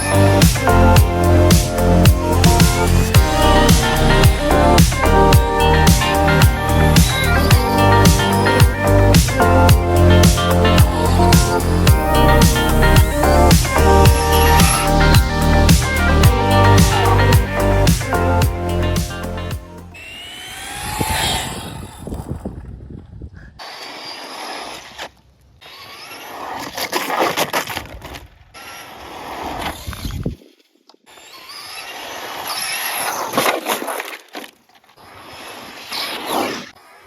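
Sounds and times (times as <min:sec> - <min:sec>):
electric motor whine: 0:19.3 - 0:22.4.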